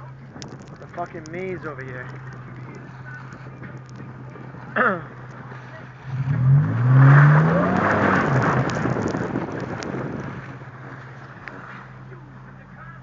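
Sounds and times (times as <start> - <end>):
road noise: 0.0 - 13.0
car engine revving: 0.2 - 13.0.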